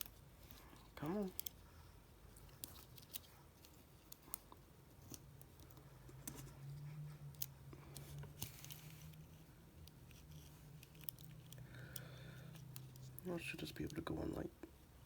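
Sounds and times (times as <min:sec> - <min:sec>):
low steady hum: 0:00.0 - 0:15.0
small tools clicking and tapping: 0:09.8 - 0:14.0.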